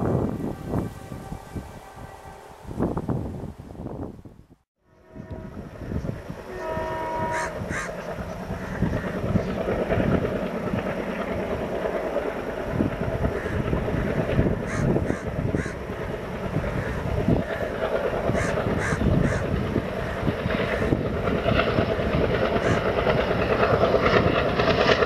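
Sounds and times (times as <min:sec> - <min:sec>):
locomotive horn: 0:00.0 - 0:03.0, 0:04.8 - 0:08.0
train rumbling past: 0:00.0 - 0:04.2, 0:04.8 - 0:25.0
crows cawing: 0:07.3 - 0:08.0, 0:14.7 - 0:15.8, 0:16.6 - 0:17.7, 0:18.3 - 0:21.0, 0:22.6 - 0:22.9.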